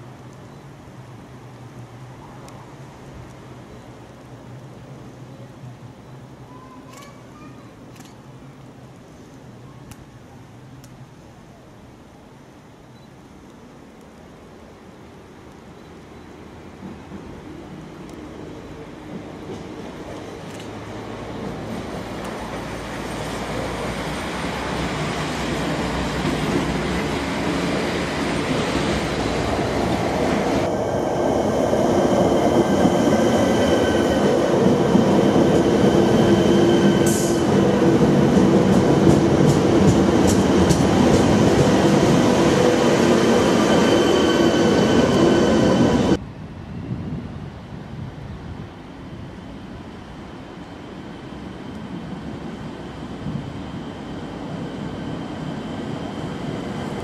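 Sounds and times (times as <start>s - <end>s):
passenger train rumbling: 15.7s - 57.0s.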